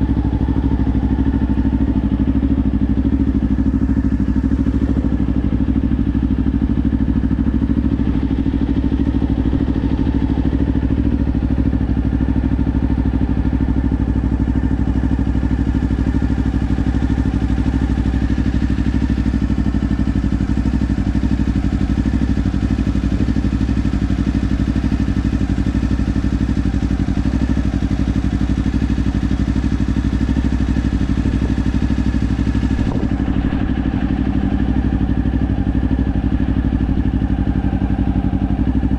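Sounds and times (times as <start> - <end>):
motorcycle engine running steadily: 0.0 - 38.9.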